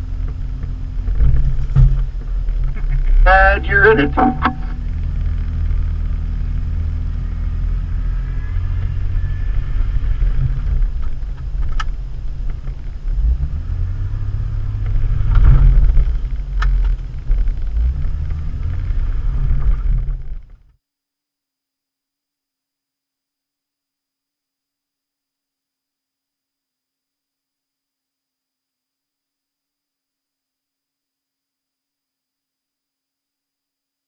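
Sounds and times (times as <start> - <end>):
suv engine rumbling: 0.0 - 20.6.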